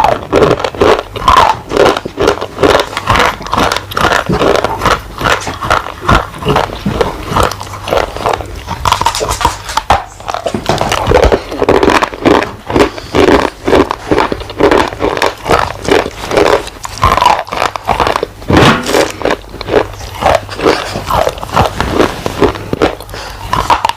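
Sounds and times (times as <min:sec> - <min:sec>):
chewing and crunching clay: 0:00.0 - 0:23.9.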